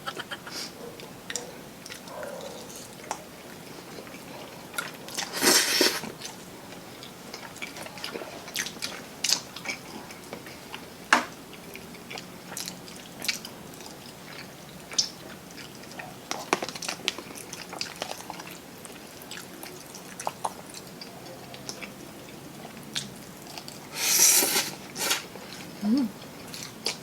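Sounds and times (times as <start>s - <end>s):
crunchy chewing: 0.0s - 10.9s.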